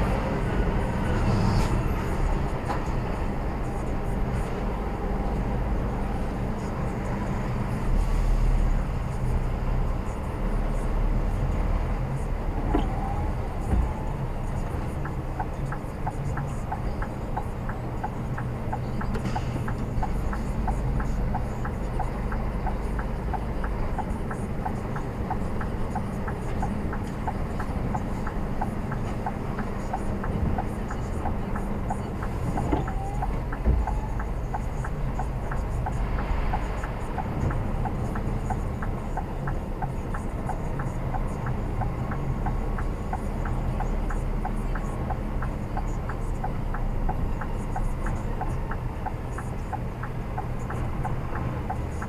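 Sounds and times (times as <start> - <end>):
truck engine humming: 0.0 - 52.0
light ticking: 12.7 - 52.0.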